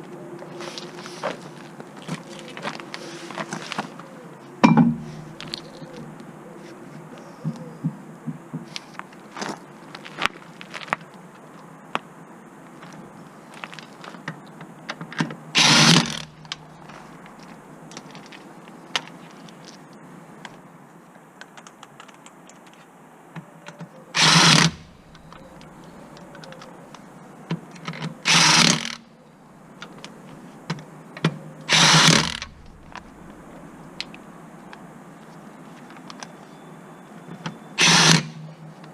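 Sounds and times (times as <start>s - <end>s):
cordless power tool running: 24.2s - 25.0s, 28.3s - 29.0s, 31.7s - 33.1s.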